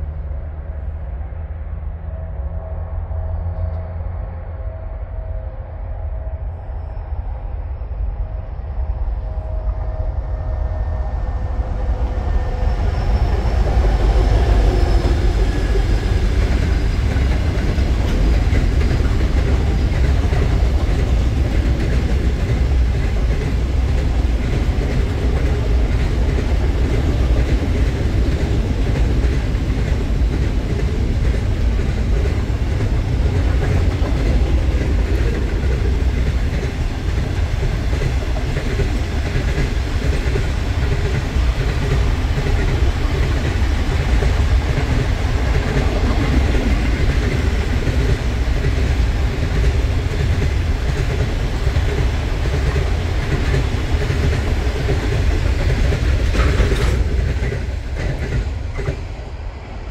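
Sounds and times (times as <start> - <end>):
freight train rumble: 0.0 - 59.9
wheels clattering on rails: 12.2 - 59.2.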